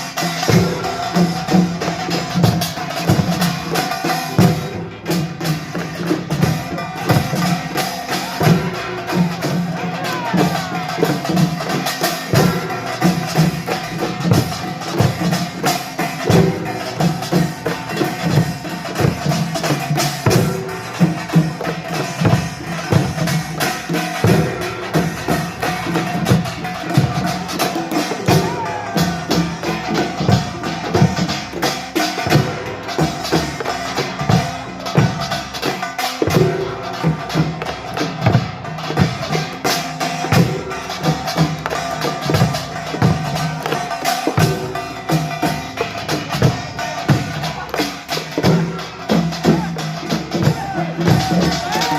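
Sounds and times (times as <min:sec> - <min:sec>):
gongs and drums beating: 0:00.0 - 0:51.9
percussion band playing: 0:00.0 - 0:51.9.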